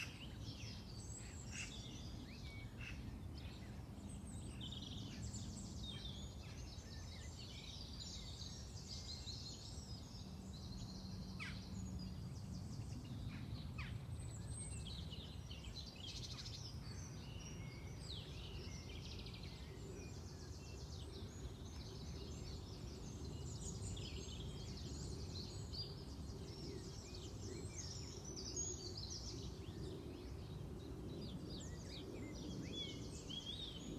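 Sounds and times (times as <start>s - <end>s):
birds chirping and warbling: 0.0s - 33.9s.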